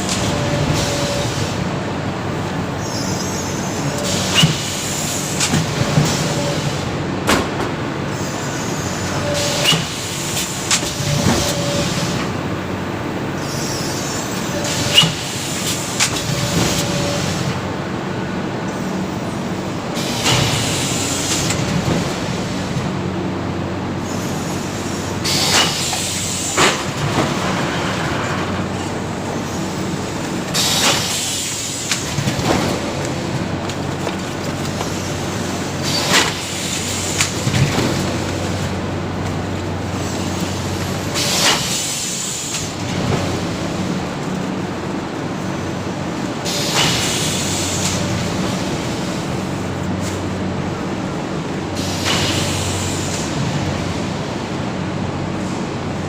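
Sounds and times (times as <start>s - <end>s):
machine knocks and clatters: 30.4s - 41.8s.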